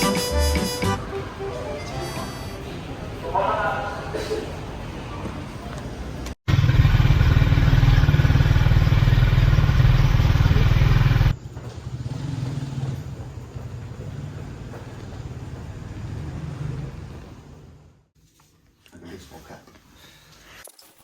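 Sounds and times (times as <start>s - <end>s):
vehicle engine rumbling: 6.2s - 18.1s.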